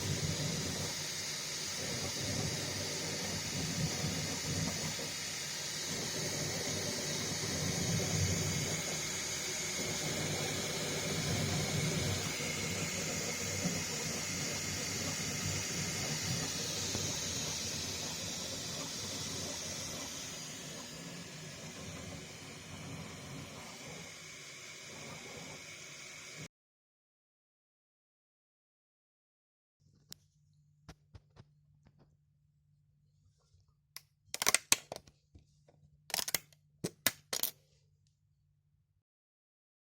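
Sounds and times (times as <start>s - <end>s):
fan hiss: 0.0s - 26.5s.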